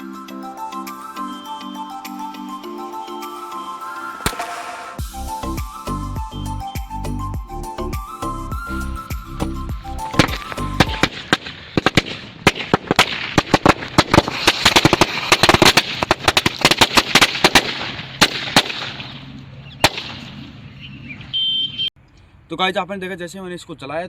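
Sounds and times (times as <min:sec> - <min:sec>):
background music: 0:00.0 - 0:11.2
firecrackers banging: 0:04.2 - 0:05.1, 0:10.1 - 0:20.4.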